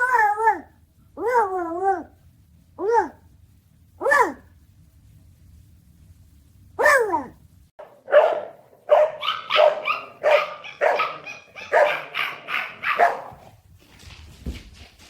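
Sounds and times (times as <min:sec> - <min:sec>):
dog barking: 0:04.0 - 0:04.4, 0:06.8 - 0:13.5.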